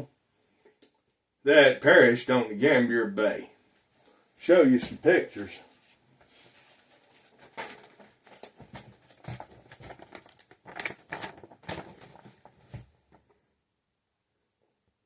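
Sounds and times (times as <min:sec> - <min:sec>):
rustling and knocking handling noises: 0:05.8 - 0:13.4.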